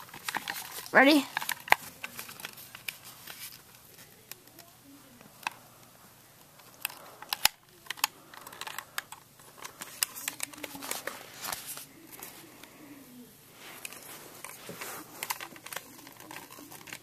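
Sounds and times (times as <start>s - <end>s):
plastic toy clicking and rattling: 0.0s - 5.7s, 6.5s - 11.2s, 13.8s - 17.0s.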